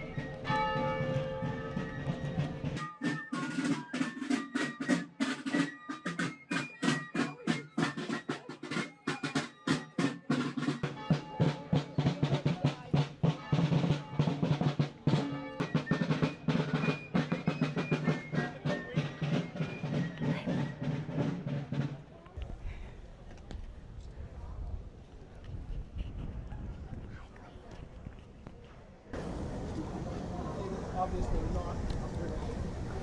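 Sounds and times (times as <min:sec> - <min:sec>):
high-pitched melody: 0:00.0 - 0:11.8
snare drum rolls: 0:01.2 - 0:22.0.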